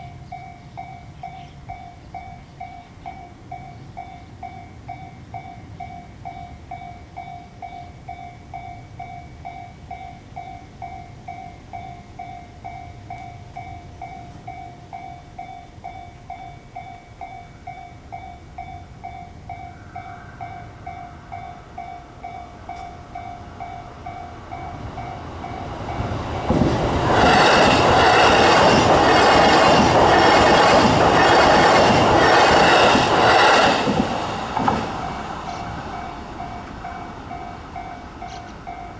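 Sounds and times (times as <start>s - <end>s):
train wheel clatter: 24.6s - 38.9s.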